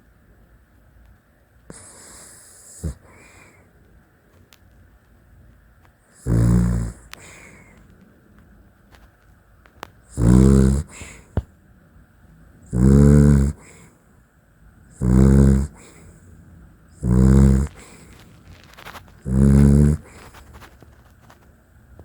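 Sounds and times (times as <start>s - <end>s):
dog snoring loudly: 1.7s - 3.6s, 6.1s - 7.7s, 10.0s - 11.3s, 12.6s - 13.9s, 14.8s - 16.2s, 16.9s - 20.7s.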